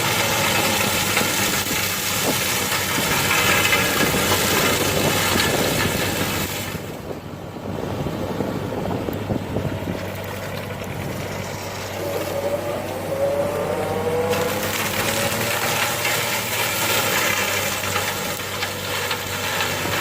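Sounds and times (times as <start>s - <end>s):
excavator engine low hum: 0.0s - 20.0s
rushing shredding noise: 0.0s - 20.0s
rising whine: 7.1s - 16.7s.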